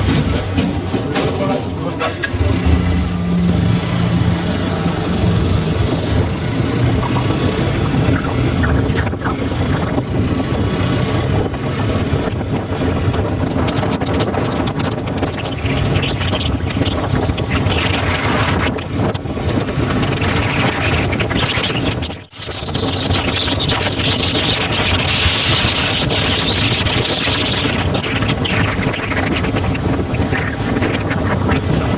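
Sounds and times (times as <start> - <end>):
motorbike engine: 0.0 - 31.9
road noise: 0.0 - 31.9
wind buffeting microphone: 0.0 - 31.9.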